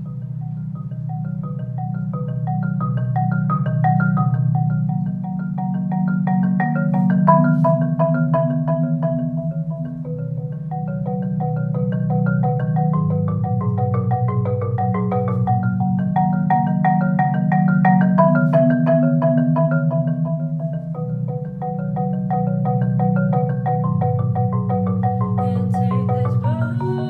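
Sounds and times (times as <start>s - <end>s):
marimba playing fast notes: 0.0s - 27.0s.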